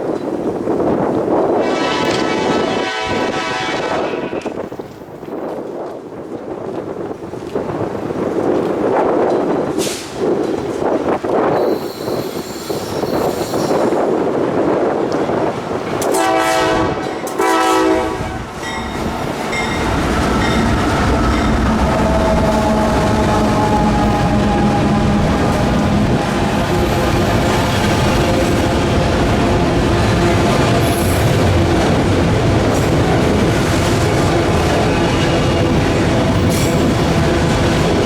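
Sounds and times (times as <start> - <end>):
wind gusting on microphone: 0.0 - 38.0
locomotive air horn blasts: 1.6 - 4.5, 16.0 - 18.4
locomotive engine rumble: 18.4 - 38.0.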